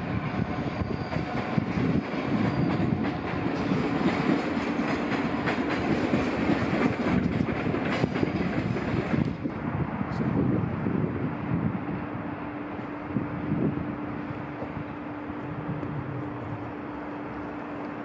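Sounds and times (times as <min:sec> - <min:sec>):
train rumble: 0:00.0 - 0:18.0
wheels clattering over rail joints: 0:00.3 - 0:09.6.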